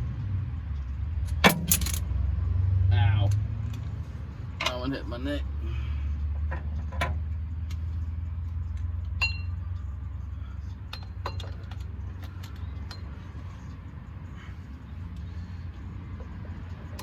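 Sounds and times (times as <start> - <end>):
steady low rumble: 7.2 - 17.0.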